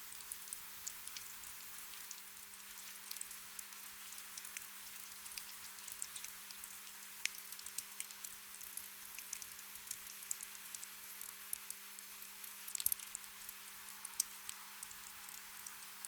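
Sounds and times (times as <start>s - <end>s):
faint steady hum: 0.0s - 16.0s
gentle rain: 0.0s - 16.0s.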